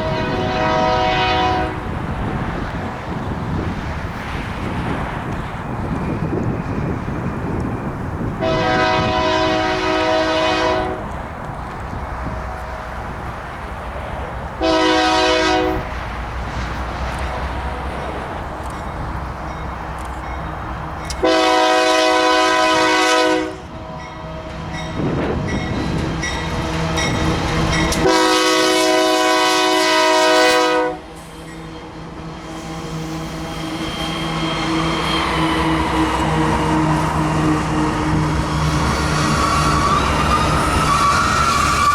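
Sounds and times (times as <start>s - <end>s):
locomotive air horn blasts: 0.0s - 1.8s, 8.4s - 11.1s, 14.6s - 16.0s, 21.2s - 25.2s, 27.9s - 31.1s
passing train rumble: 0.0s - 41.9s.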